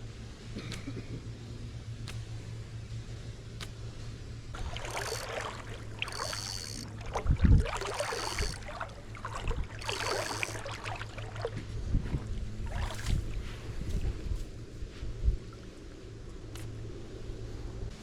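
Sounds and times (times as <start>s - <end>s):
wading and splashing in water: 4.4s - 14.8s.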